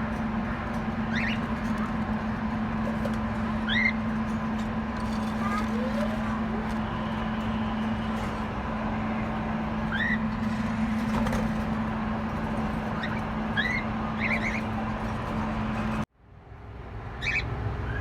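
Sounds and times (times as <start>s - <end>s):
steady low hum: 0.0s - 18.0s
small birds chirping: 1.0s - 2.3s, 2.9s - 4.3s, 9.8s - 10.5s, 12.7s - 16.0s, 17.2s - 18.0s.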